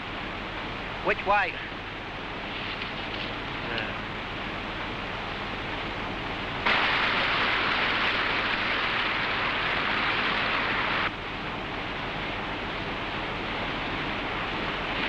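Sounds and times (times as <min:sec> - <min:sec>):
white-water rapids rushing: 0:06.7 - 0:11.1.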